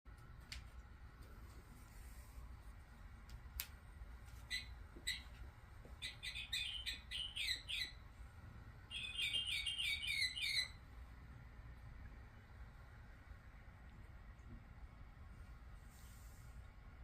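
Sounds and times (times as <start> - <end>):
electronic bird toy chirping: 4.5 - 5.3, 6.0 - 8.0, 8.9 - 10.8.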